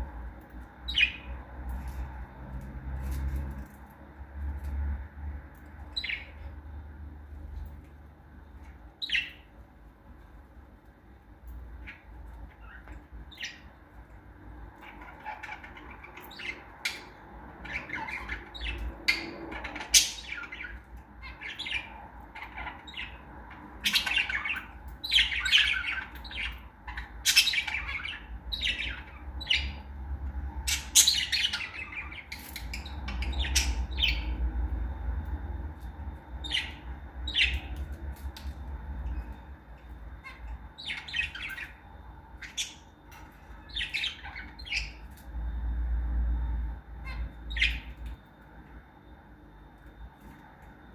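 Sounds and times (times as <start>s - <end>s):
lovebirds squawking and chirping: 0.1s - 2.1s, 5.8s - 6.7s, 8.6s - 9.6s, 11.7s - 35.0s, 35.8s - 45.3s, 47.0s - 48.2s.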